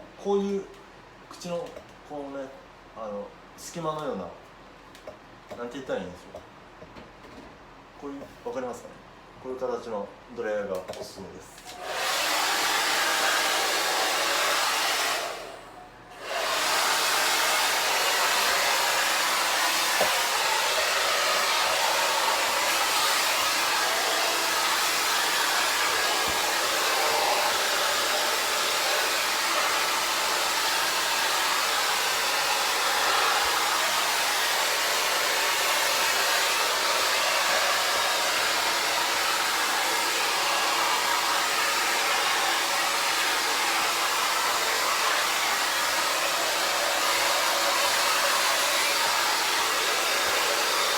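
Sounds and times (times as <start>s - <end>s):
hair dryer blowing: 11.6s - 50.9s.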